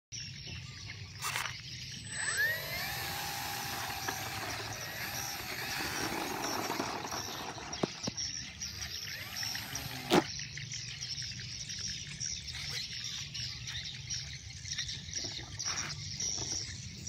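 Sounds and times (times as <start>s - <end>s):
plane propeller whining: 1.9s - 10.3s.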